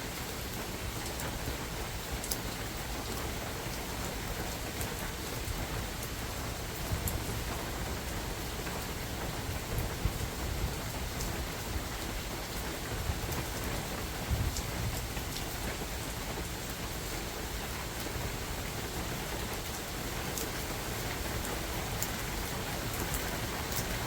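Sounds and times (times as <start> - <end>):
steady rain hiss: 0.0 - 24.0
raindrops ticking close by: 0.1 - 24.0
wind buffeting microphone: 9.2 - 15.6.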